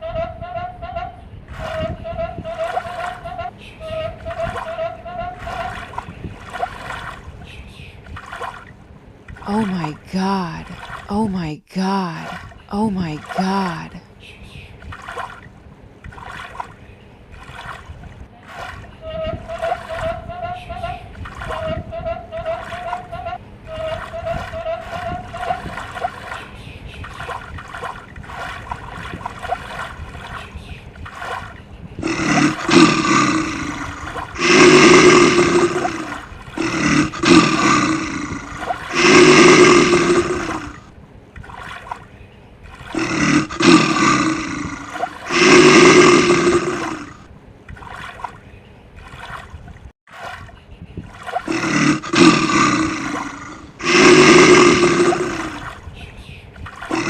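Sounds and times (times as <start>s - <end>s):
rough animal roars: 32.0s - 40.9s, 42.9s - 47.3s, 51.4s - 55.8s.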